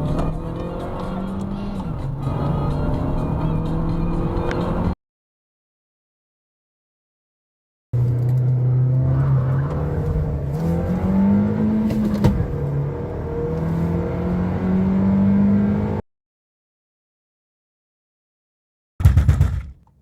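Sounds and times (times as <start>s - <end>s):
car engine accelerating: 0.0s - 5.0s, 8.0s - 16.0s.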